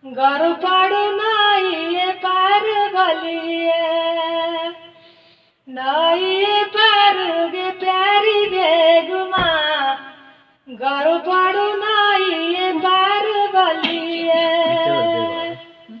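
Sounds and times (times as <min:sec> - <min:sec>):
person singing folk song: 0:10.7 - 0:16.0.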